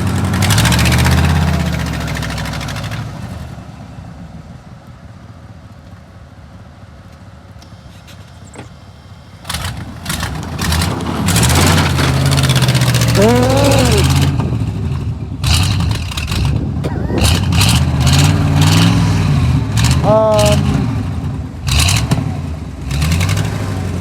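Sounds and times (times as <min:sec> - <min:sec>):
rough car engine revving: 0:00.0 - 0:03.6, 0:09.4 - 0:24.0.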